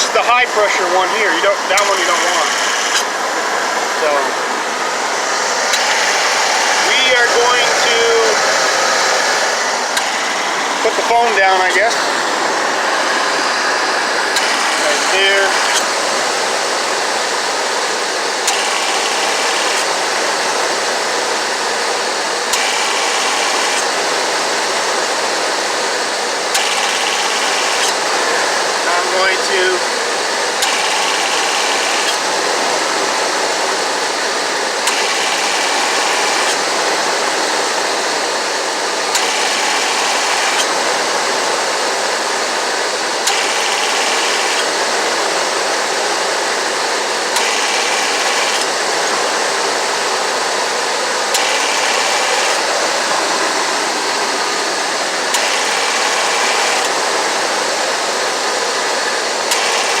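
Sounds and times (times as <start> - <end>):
high whine: 0.0 - 21.6
van engine running: 0.0 - 60.0
compressor clutch clicking: 1.6 - 3.1, 5.4 - 16.1, 18.0 - 20.7, 22.4 - 24.2, 26.4 - 32.4, 34.6 - 36.8, 37.8 - 41.3, 42.6 - 45.1, 46.9 - 49.3, 51.2 - 57.4, 59.2 - 60.0.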